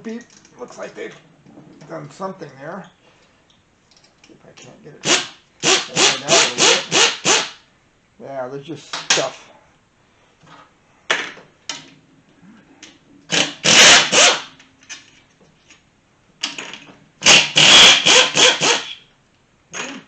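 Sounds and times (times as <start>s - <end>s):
pneumatic air tool spinning: 5.0s - 7.6s, 13.3s - 14.5s, 17.2s - 19.0s.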